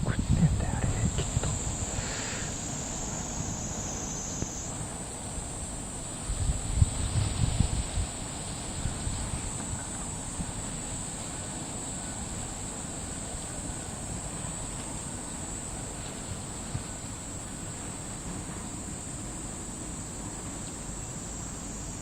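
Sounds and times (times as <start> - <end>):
wind rumbling on microphone: 0.0 - 12.5.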